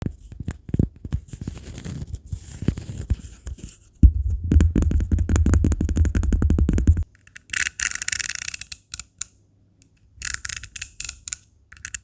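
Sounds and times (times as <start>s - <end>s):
steady low hum: 3.9s - 7.4s
tapping and scratching small objects: 4.8s - 12.0s.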